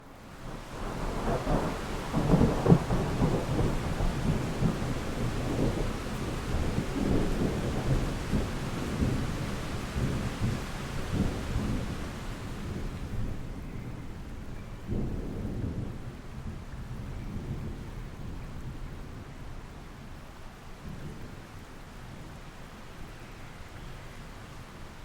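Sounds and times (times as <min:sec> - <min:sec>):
steady rain: 0:00.0 - 0:25.0
rolling thunder: 0:00.4 - 0:14.0.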